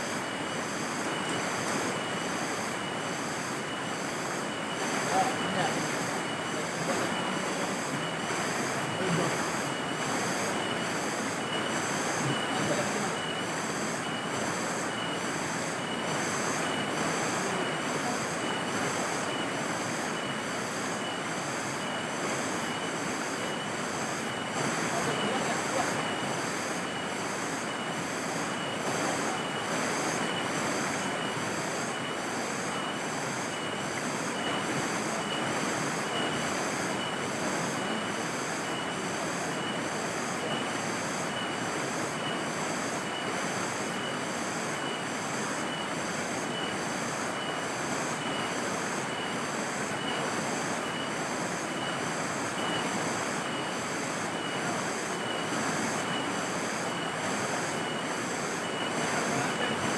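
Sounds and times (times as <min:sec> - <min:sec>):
constant hiss: 0:00.0 - 0:59.9
insects trilling: 0:00.0 - 0:59.9.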